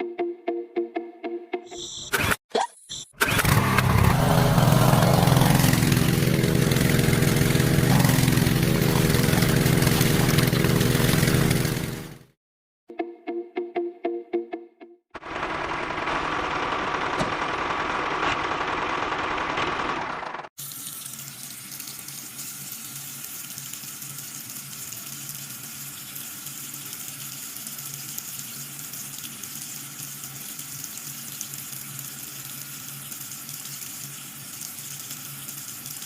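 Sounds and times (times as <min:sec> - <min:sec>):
water running and splashing: 0:06.4 - 0:11.6, 0:20.6 - 0:36.0.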